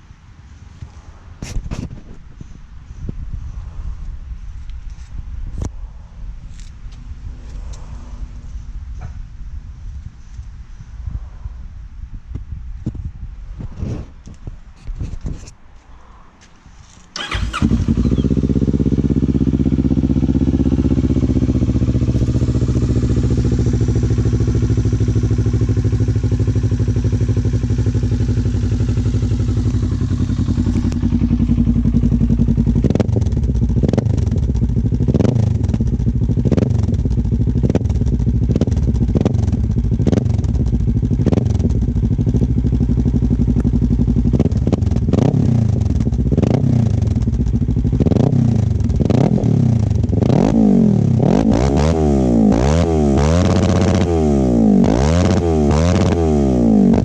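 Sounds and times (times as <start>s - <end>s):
engine quick revs: 17.1s - 18.8s
engine starting and idling: 17.2s - 18.6s.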